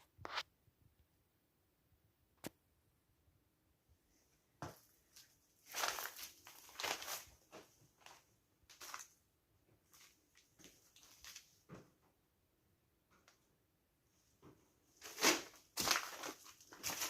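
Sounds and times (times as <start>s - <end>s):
footsteps scuffing on floor: 4.6s - 9.1s, 15.0s - 17.0s.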